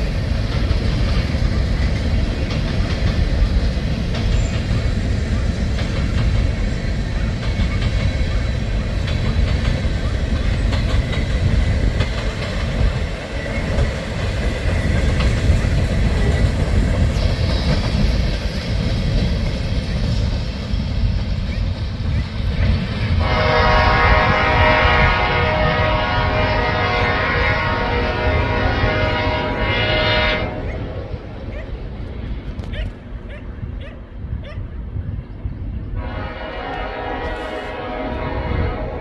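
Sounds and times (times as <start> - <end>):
wheels clicking over rail joints: 0.0 - 23.2
train rumbling past: 0.0 - 39.0
train air horn: 23.2 - 31.0, 36.0 - 39.0.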